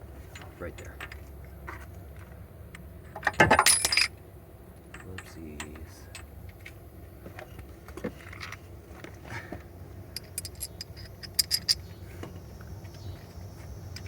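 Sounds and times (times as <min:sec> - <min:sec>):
low steady hum: 0:00.0 - 0:14.0
metal tools and bolts clinking: 0:00.2 - 0:01.2, 0:03.2 - 0:04.2, 0:04.9 - 0:06.3, 0:10.2 - 0:11.9.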